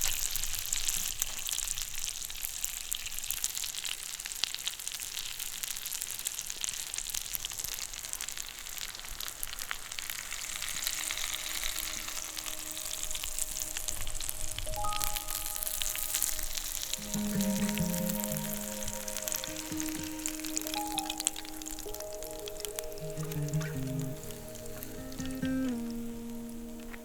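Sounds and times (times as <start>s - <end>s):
food sizzling in frying pan: 0.0s - 27.0s
soft instrumental music: 11.9s - 27.0s.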